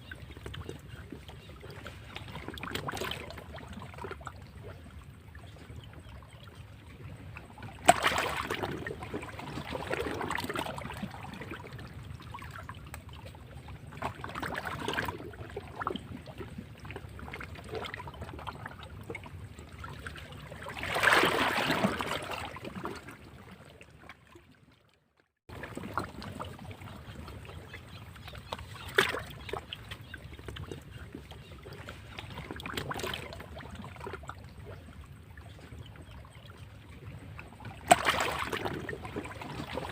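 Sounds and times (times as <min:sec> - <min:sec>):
sea waves breaking against rocks: 0:07.8 - 0:11.7, 0:20.4 - 0:23.1, 0:37.8 - 0:39.9.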